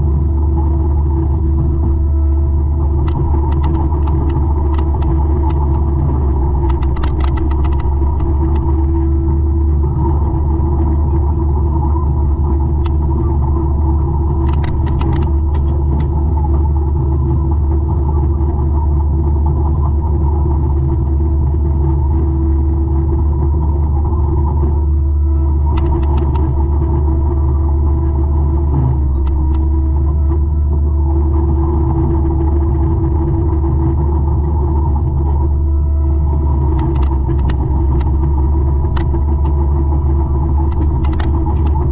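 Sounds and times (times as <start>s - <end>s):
mulcher engine drone: 0.0s - 41.9s
steady hum: 0.0s - 41.9s.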